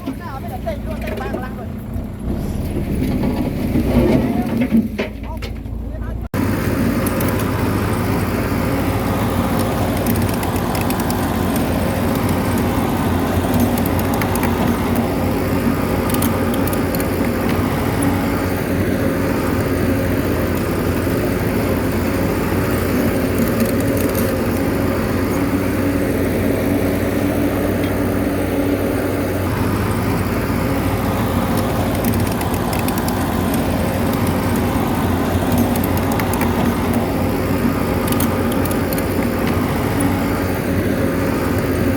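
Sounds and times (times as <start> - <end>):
bulldozer diesel engine: 0.0 - 41.9.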